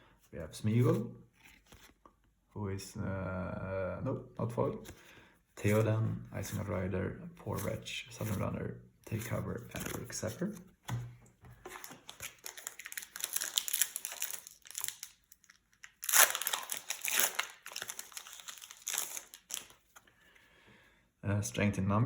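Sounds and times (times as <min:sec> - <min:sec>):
foil wrapper crinkling: 0:11.8 - 0:19.9.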